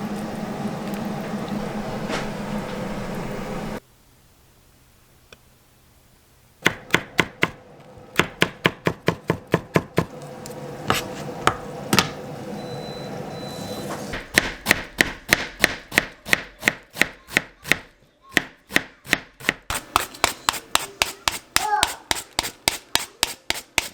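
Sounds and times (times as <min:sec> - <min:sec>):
knife chopping on cutting board: 0:06.6 - 0:07.6, 0:08.2 - 0:10.1, 0:14.2 - 0:23.9.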